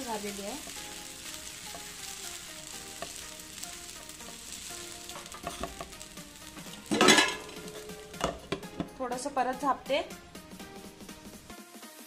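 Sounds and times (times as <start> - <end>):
food sizzling in a pan: 0.0 - 12.0
spatula scraping pan: 0.6 - 9.0
cookware clattering: 5.2 - 5.9, 6.7 - 9.0.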